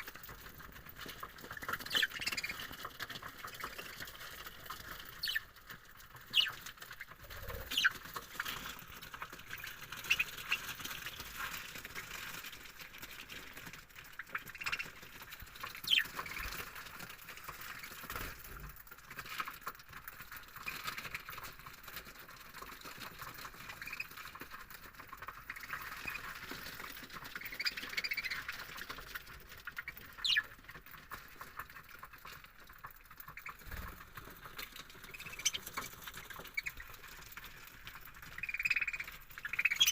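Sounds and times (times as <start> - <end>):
budgerigars chirping: 1.8 - 2.6, 5.2 - 5.5, 6.3 - 6.6, 7.5 - 8.0, 15.8 - 16.5, 27.4 - 28.6, 29.9 - 30.5, 35.1 - 35.7, 38.4 - 39.9
sharp bird calls: 1.8 - 2.7, 5.2 - 5.5, 6.3 - 6.6, 7.4 - 8.0, 15.8 - 16.4, 29.9 - 30.5, 38.4 - 39.9.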